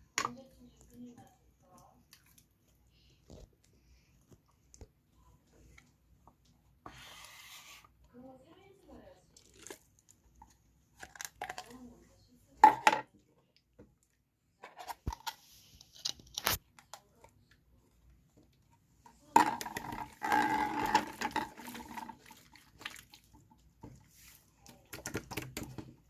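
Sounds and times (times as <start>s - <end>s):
slime squelching and popping: 9.3s - 10.3s, 19.6s - 23.8s.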